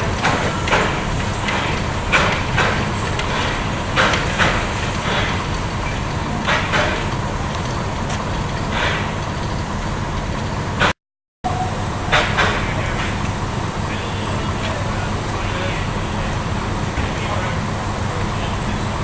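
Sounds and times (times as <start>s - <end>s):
wheels clicking over rail joints: 0.0s - 11.0s
train running rumble: 0.0s - 19.0s.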